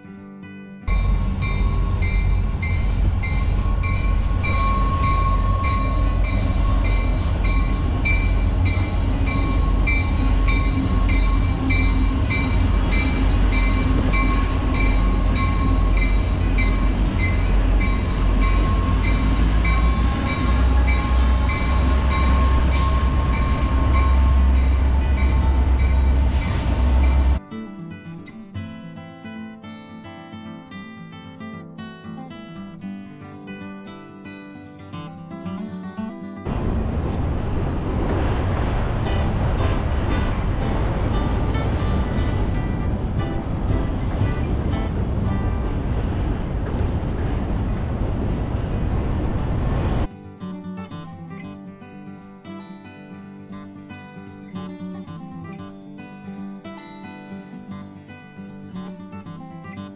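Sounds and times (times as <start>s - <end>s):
high ringing tones: 0.9s - 27.4s
train rumble on bridge: 0.9s - 27.4s, 36.5s - 50.1s
wheels clattering over rails: 0.9s - 27.4s, 36.5s - 50.1s.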